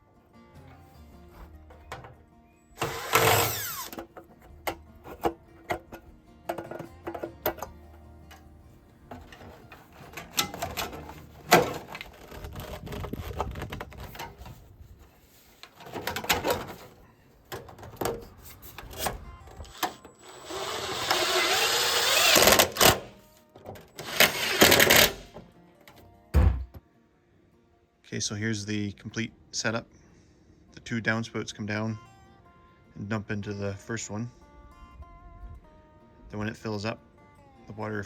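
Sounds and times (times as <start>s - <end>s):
metal clanks and knocks: 1.4s - 8.5s, 9.1s - 14.6s, 15.6s - 20.0s, 26.4s - 26.8s
loud steady cutting noise: 2.8s - 4.1s, 19.6s - 23.2s, 24.0s - 25.3s.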